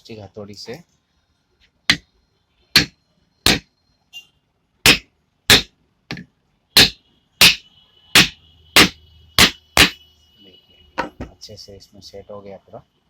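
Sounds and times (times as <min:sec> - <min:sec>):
plastic hammer tapping metal: 0:02.8 - 0:03.7, 0:08.2 - 0:10.0.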